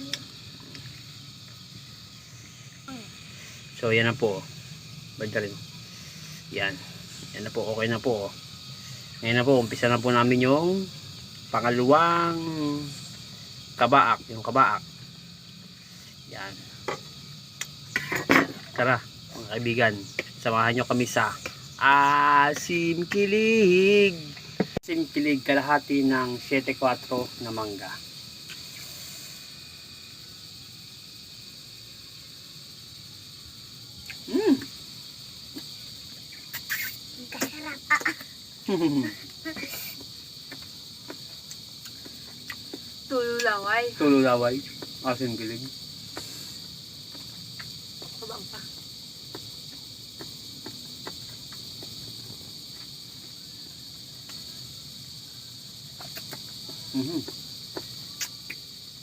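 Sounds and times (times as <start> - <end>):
crickets chirring: 0.0 - 59.0
insects droning: 0.0 - 59.0.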